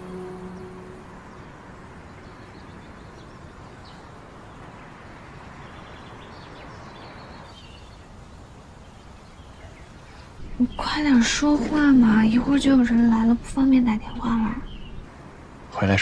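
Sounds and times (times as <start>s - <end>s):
soft music: 0.0s - 3.7s
faint bird chirps: 0.0s - 15.1s
outdoor background noise: 0.0s - 16.0s.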